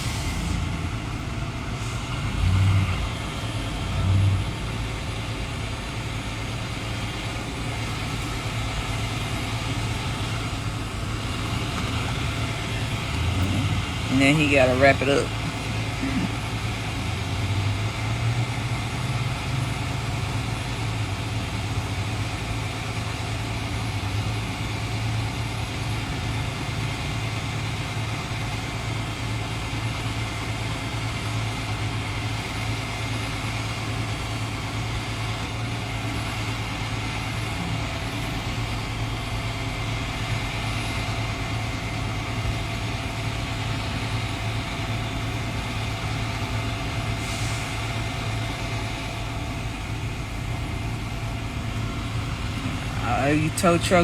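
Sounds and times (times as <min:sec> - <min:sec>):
vehicle engine idling: 0:00.0 - 0:54.0
fan and road noise hiss: 0:07.2 - 0:22.0, 0:31.3 - 0:54.0.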